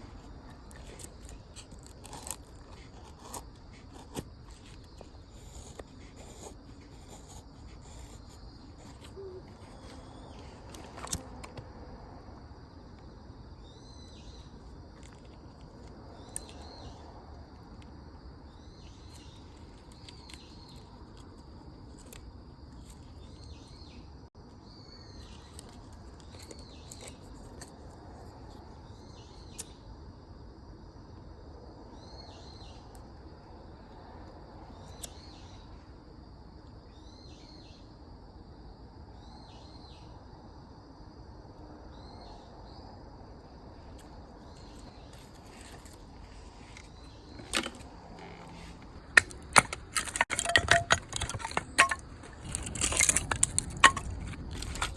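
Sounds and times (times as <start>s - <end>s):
bird calling: 7.8s - 10.6s.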